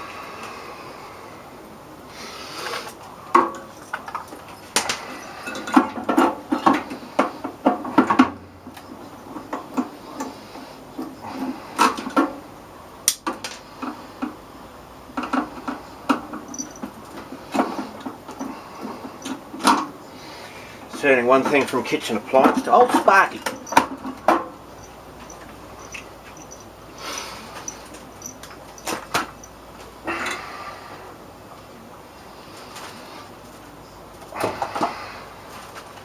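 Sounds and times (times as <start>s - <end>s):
hand tools clicking and scraping: 2.6s - 12.4s, 15.2s - 30.5s.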